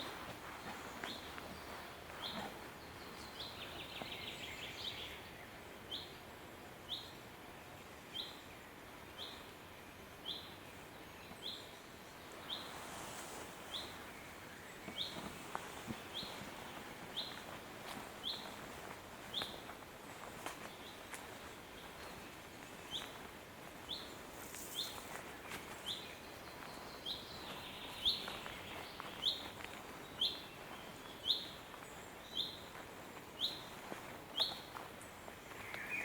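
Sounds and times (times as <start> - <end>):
forest hiss: 11.8 - 17.4, 23.0 - 26.5.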